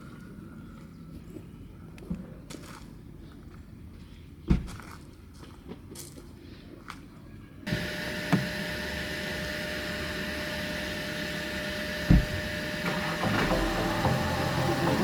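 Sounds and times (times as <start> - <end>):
mechanical hum and hiss: 7.7 - 15.0
dull thumps: 12.0 - 14.8.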